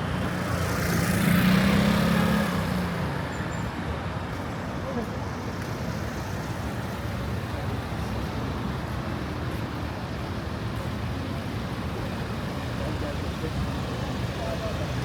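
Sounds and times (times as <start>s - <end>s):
city road traffic hum: 0.0s - 15.0s.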